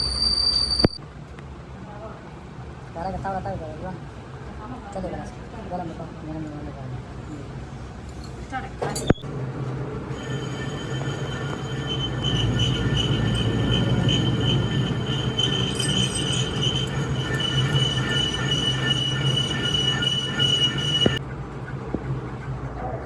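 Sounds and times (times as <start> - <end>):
high-pitched metallic squeal: 0.0 - 1.0, 10.0 - 21.2
low mechanical rumble: 6.5 - 23.0.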